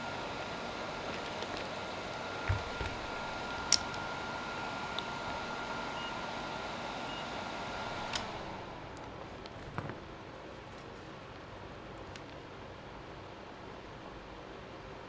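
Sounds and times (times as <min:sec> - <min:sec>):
electric fan whirring: 0:00.0 - 0:15.0
fan switch click: 0:02.4 - 0:06.2, 0:07.0 - 0:09.1.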